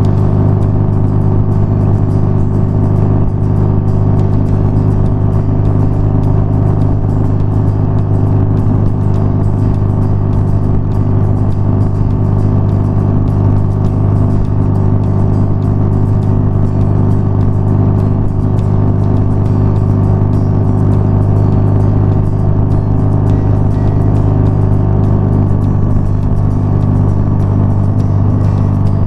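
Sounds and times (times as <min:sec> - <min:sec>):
motorcycle engine droning: 0:00.0 - 0:29.0.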